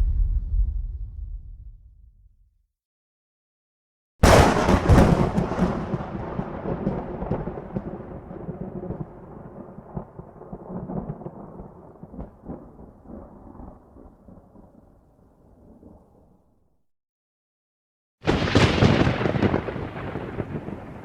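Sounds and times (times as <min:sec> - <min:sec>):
thunder crack and rolling rumble: 0:00.0 - 0:01.9, 0:04.2 - 0:15.0, 0:18.3 - 0:21.0.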